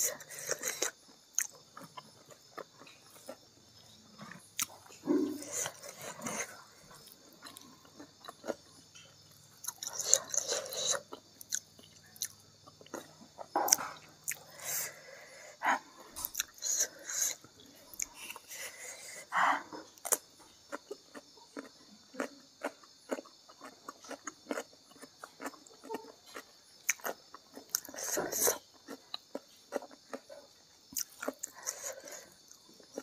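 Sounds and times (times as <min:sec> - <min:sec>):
person chewing food: 0:00.0 - 0:33.0.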